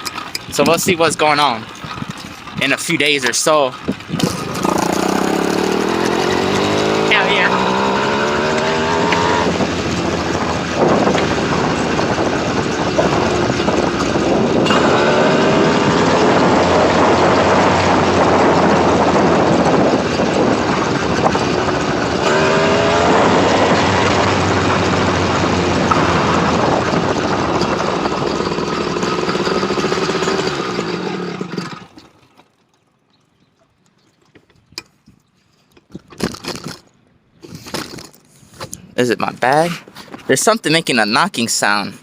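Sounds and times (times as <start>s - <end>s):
motorized bicycle engine running: 9.6s - 32.3s.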